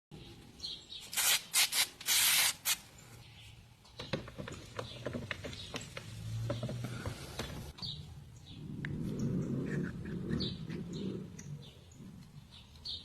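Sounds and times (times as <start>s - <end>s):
loud hissing spray bursts: 1.0s - 2.8s.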